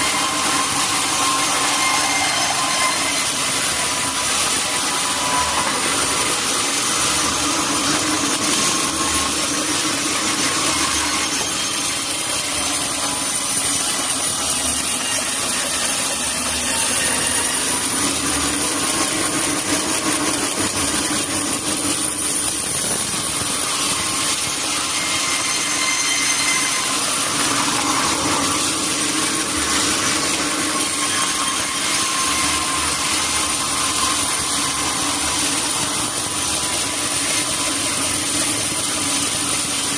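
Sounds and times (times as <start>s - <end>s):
sawmill saw cutting through log: 0.0s - 39.9s.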